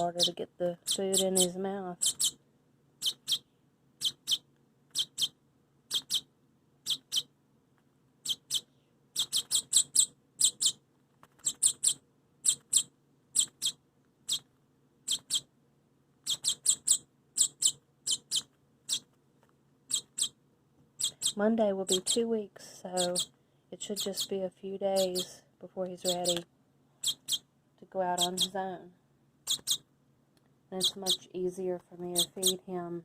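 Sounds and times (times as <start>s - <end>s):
baby bird chirping: 0.0s - 2.4s, 3.0s - 7.3s, 8.2s - 10.8s, 11.4s - 15.5s, 16.2s - 19.1s, 19.9s - 20.4s, 21.0s - 22.2s, 22.9s - 25.3s, 25.9s - 26.4s, 27.0s - 27.5s, 28.1s - 28.7s, 29.4s - 29.9s, 30.8s - 31.3s, 32.0s - 32.7s.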